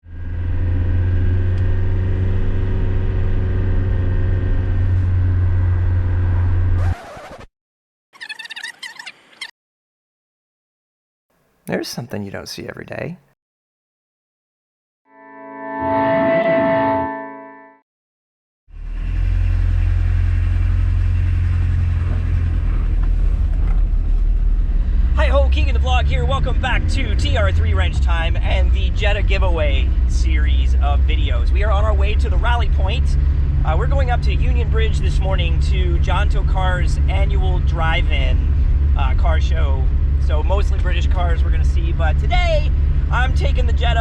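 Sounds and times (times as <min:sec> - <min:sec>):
vehicle engine running: 0:18.8 - 0:44.0.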